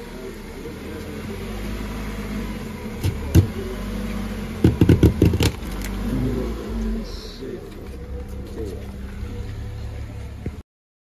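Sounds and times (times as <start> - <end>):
car engine idling: 0.0 - 10.6
thumps: 3.0 - 3.6, 4.6 - 5.8.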